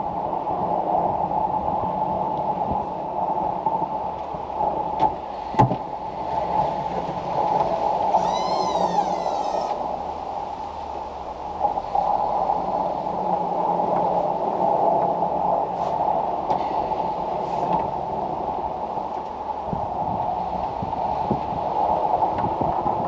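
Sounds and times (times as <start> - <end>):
wavering whine: 8.0 - 10.1.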